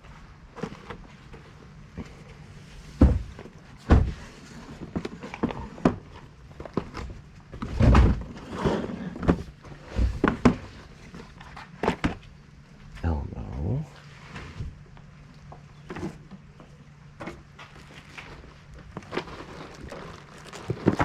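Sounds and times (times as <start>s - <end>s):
thuds and knocks of objects: 2.9s - 10.8s, 11.8s - 12.3s, 20.5s - 21.0s.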